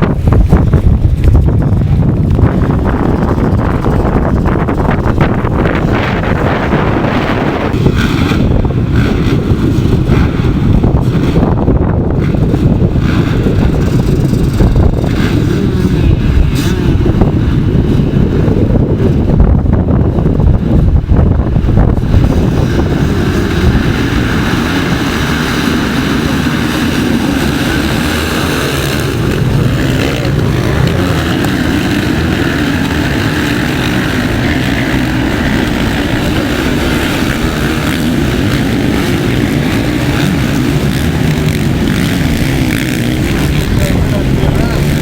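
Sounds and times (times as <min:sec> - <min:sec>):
motocross bike engines revving: 0:00.0 - 0:45.0.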